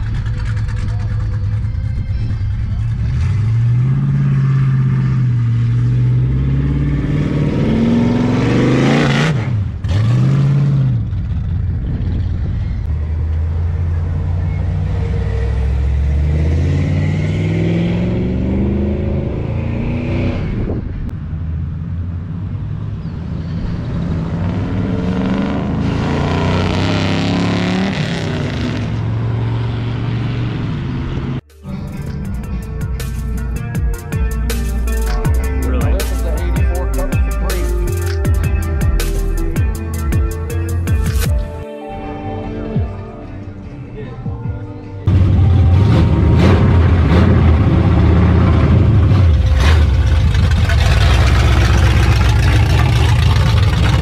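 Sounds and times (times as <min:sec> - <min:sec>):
car engine accelerating hard: 0:00.0 - 0:31.4, 0:45.1 - 0:54.0
road and wind noise: 0:00.0 - 0:54.0.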